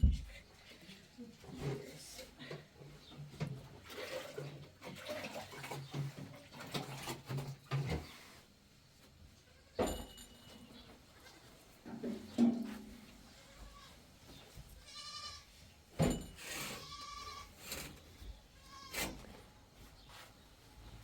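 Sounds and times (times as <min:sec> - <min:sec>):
livestock bleating: 0:13.4 - 0:14.0, 0:14.8 - 0:15.5, 0:16.7 - 0:17.6, 0:18.6 - 0:19.0.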